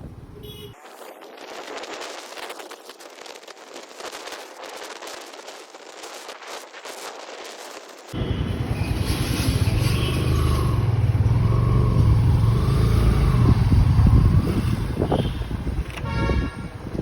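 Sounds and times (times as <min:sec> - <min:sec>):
motorcycle engine rumble: 0:00.0 - 0:00.7, 0:08.2 - 0:17.0.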